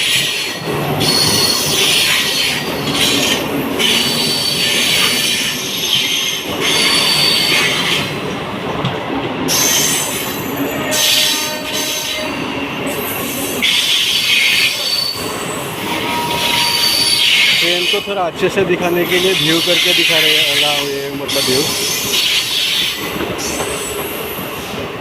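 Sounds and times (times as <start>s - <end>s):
train wheels rumbling on track: 0.0s - 25.0s
high-pitched wheel squeal: 13.7s - 18.1s.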